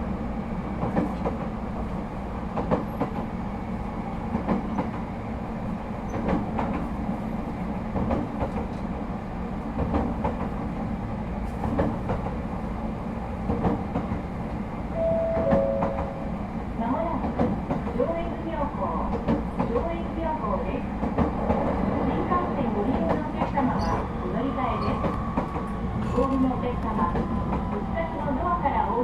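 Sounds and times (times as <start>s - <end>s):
train wheels rumbling on rails: 0.0s - 29.0s
two-note chime: 15.0s - 16.3s.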